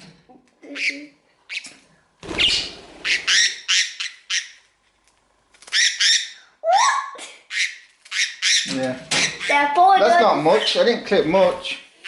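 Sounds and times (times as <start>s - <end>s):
budgie squawking: 2.4s - 4.6s, 5.7s - 9.8s.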